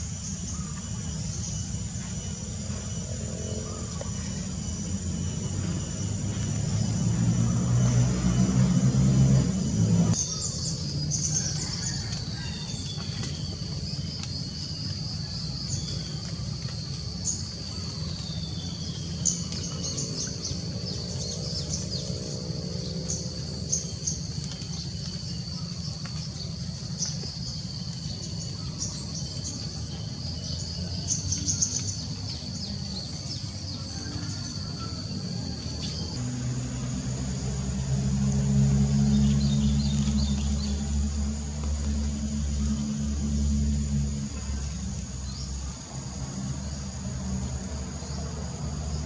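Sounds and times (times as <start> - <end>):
high insect trill: 0.0 - 49.0
steady low hum: 0.0 - 49.0.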